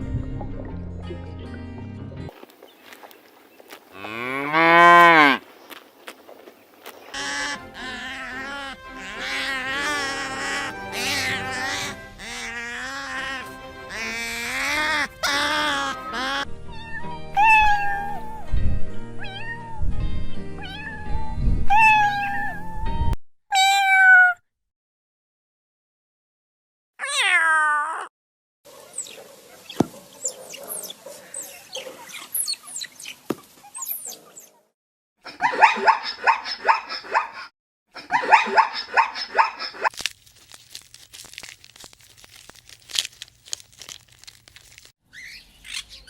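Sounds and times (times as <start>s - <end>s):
cats meowing: 7.2s - 18.4s, 19.2s - 19.8s, 20.6s - 21.1s, 21.7s - 22.6s, 23.6s - 24.4s, 27.0s - 28.1s.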